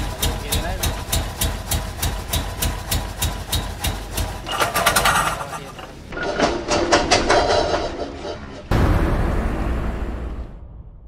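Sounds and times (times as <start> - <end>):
engine idling with ticking: 0.0 - 5.7
engine clatter: 0.0 - 8.2.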